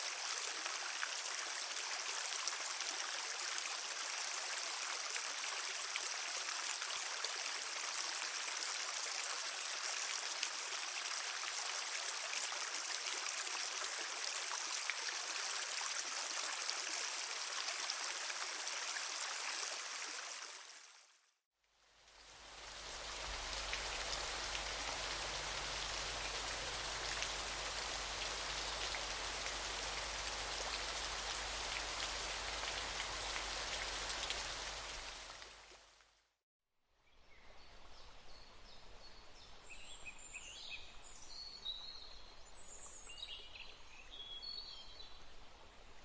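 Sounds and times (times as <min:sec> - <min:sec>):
rushing water: 0:00.0 - 0:21.0, 0:21.8 - 0:35.9.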